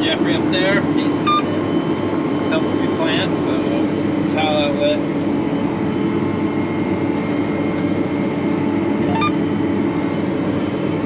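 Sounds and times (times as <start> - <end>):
tractor engine droning: 5.1 - 11.0.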